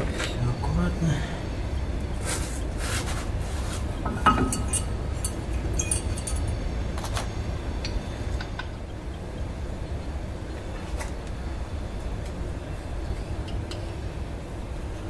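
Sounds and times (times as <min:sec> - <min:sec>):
metal brake parts clinking: 0:04.0 - 0:07.3.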